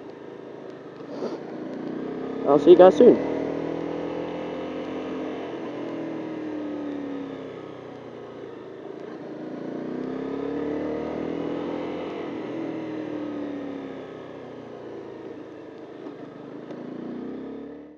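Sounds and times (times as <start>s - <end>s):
motorcycle engine revving: 0.0s - 17.9s.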